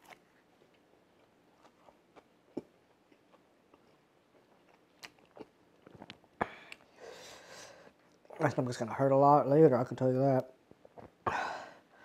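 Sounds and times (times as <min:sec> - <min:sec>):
faint chewing: 0:00.0 - 0:07.0.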